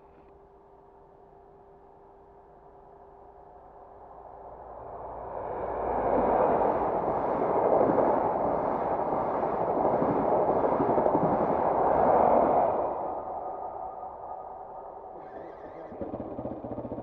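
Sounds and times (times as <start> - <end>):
train wheels rushing on rails: 5.6 - 13.4.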